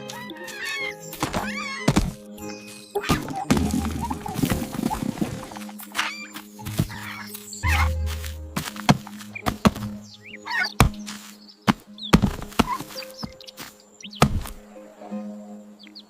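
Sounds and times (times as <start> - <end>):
cartoon background music: 0.0 - 16.0
sharp knocks and thuds: 1.2 - 2.2, 8.6 - 10.0, 10.8 - 13.4, 14.2 - 14.6.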